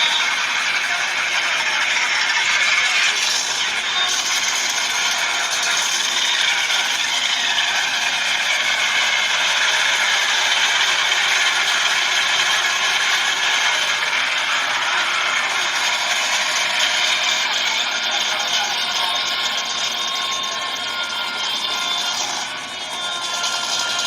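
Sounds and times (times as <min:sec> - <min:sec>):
loud mechanical rattling: 0:00.0 - 0:24.0.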